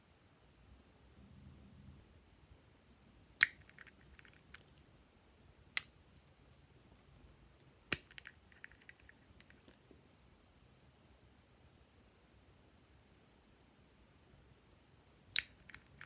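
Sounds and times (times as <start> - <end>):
slime popping and crackling: 15.4 - 16.0.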